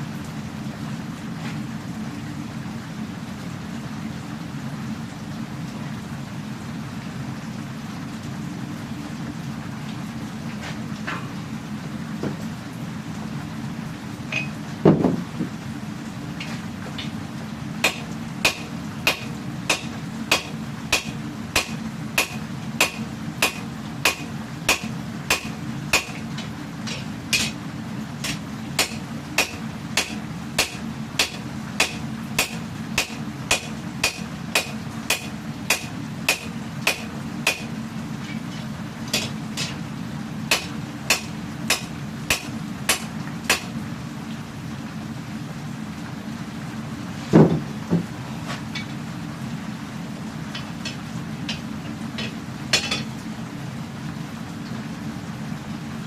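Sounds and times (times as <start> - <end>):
gas forge roaring: 8.2 - 54.5
hammer striking steel on anvil: 17.8 - 26.2, 26.9 - 27.6, 28.2 - 37.7, 39.1 - 39.8, 40.5 - 43.7, 52.2 - 53.1.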